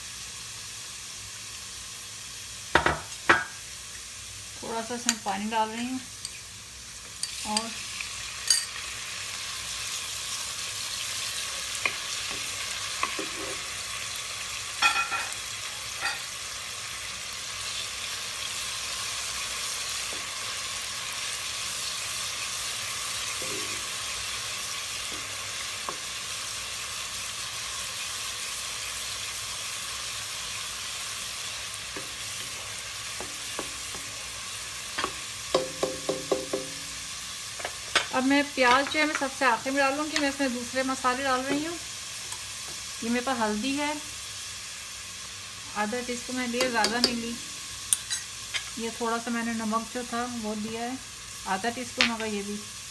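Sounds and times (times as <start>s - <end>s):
sizzling in hot oil: 0.0s - 52.9s
spoon knocking against pan: 2.8s - 3.6s, 33.2s - 34.1s, 35.0s - 39.3s.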